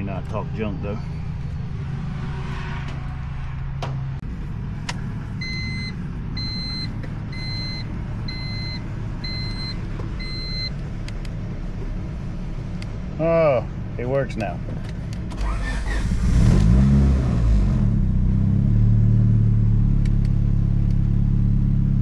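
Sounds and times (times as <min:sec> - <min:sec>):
car engine idling: 0:03.3 - 0:16.2
short electronic beeps: 0:05.4 - 0:10.7.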